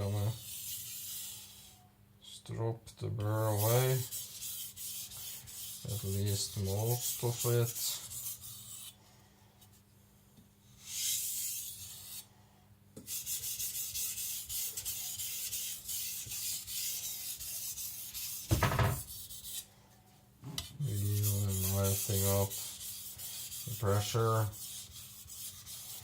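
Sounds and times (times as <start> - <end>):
thud: 18.5 - 19.1.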